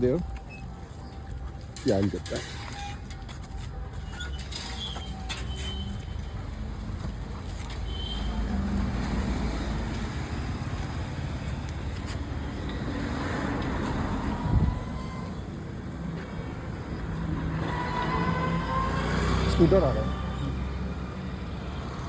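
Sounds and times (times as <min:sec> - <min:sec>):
motor vehicles passing: 0:05.6 - 0:22.0.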